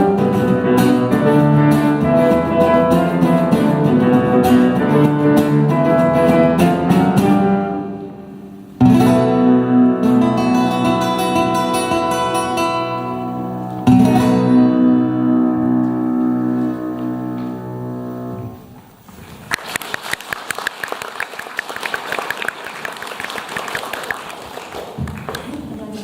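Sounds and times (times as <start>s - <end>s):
plucked string instrument: 0.0s - 18.8s
audience applauding: 19.4s - 26.0s.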